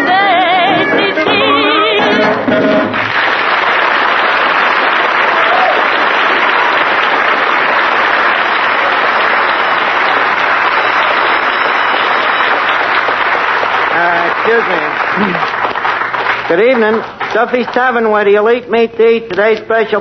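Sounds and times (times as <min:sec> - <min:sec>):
audience applauding: 0:02.7 - 0:18.2.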